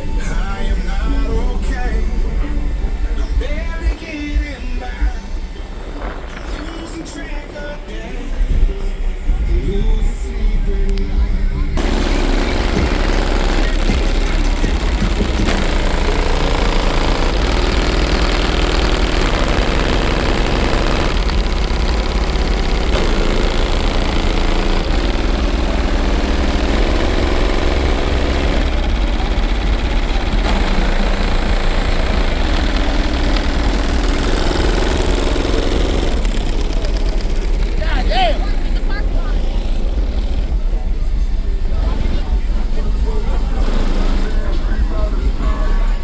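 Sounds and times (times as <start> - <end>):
bass-heavy music from car stereo: 0.0 - 20.0, 37.8 - 46.0.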